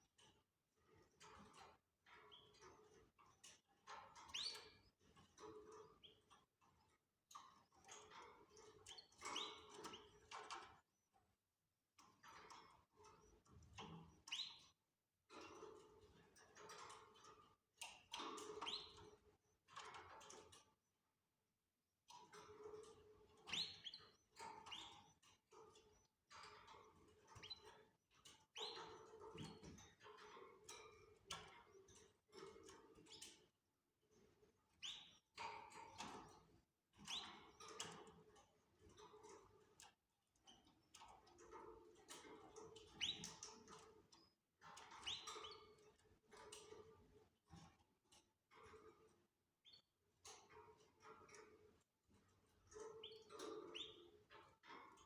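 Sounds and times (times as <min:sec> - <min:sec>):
canaries chirping: 0:04.3 - 0:04.7, 0:09.2 - 0:10.0, 0:14.2 - 0:14.6, 0:18.4 - 0:19.1, 0:22.6 - 0:25.8, 0:26.6 - 0:27.8, 0:28.6 - 0:30.3, 0:34.8 - 0:35.2, 0:37.0 - 0:37.8, 0:42.2 - 0:43.8, 0:44.8 - 0:45.8, 0:52.7 - 0:54.4.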